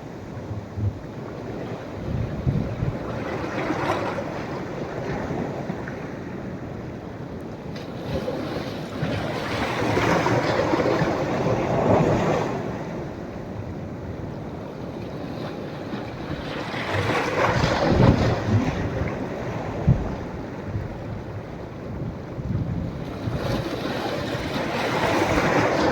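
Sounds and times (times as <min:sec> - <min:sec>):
wind rumble on microphone: 0:00.0 - 0:07.2, 0:07.8 - 0:25.9
waves breaking on beach: 0:07.7 - 0:13.9, 0:14.5 - 0:25.9.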